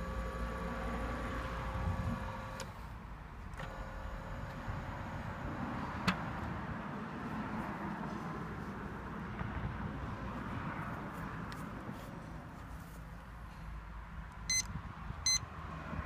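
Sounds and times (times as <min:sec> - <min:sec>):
electric machine whine: 0:00.0 - 0:02.6.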